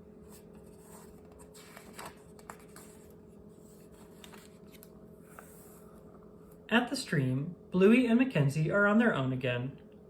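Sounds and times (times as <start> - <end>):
low steady hum: 0.0 - 10.0
paper pages rustling: 0.2 - 5.9.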